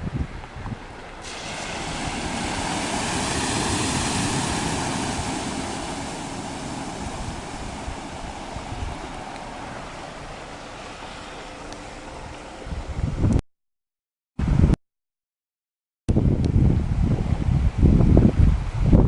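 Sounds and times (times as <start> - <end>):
rushing floodwater roar: 0.8 - 12.7.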